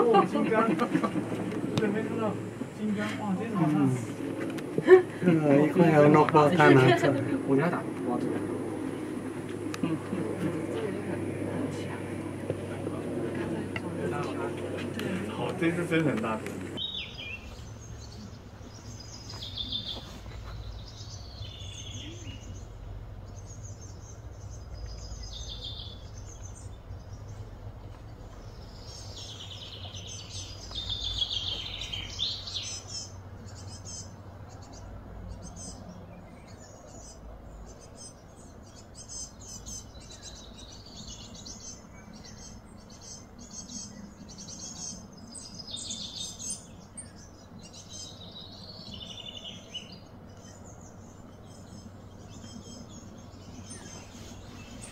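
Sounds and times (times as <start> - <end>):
birds chirping and calling: 0.0 - 54.9
steady low hum: 0.0 - 54.9.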